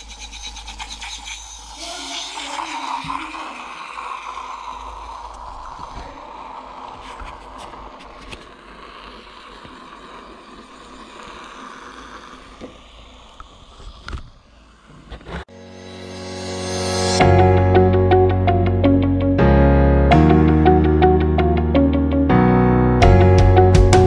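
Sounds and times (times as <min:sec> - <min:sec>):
drink pouring into metal cup: 0:00.6 - 0:13.5.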